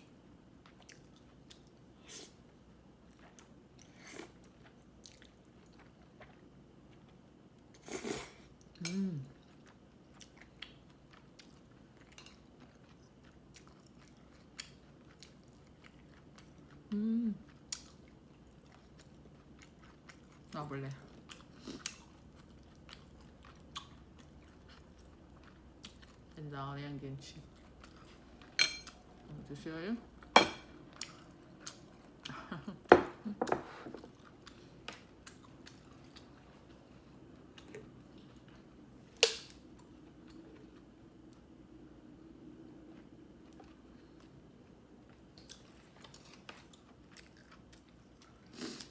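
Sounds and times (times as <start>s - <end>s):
person chewing food: 0.6s - 26.4s, 27.4s - 29.2s, 30.2s - 32.8s, 33.5s - 41.5s, 42.7s - 48.9s.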